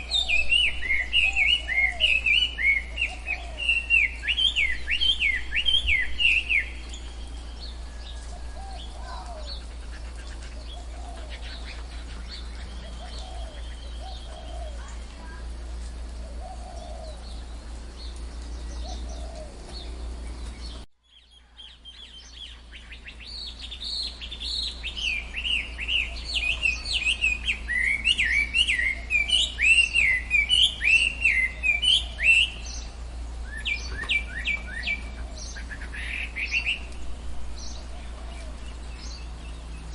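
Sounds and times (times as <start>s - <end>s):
birds chirping and calling: 0.0s - 39.9s
steady low rumble: 31.6s - 39.9s.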